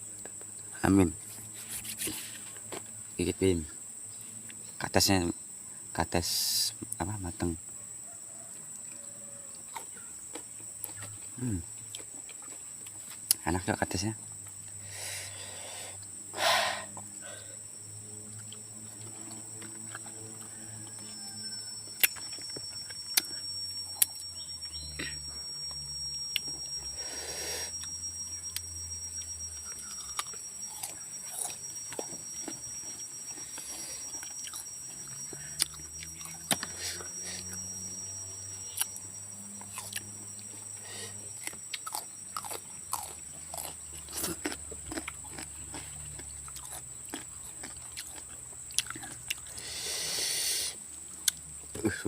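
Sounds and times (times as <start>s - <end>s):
steady high-pitched whine: 0.0s - 52.0s
chewing and crunching fruit: 8.5s - 16.2s, 18.2s - 39.0s, 39.6s - 52.0s.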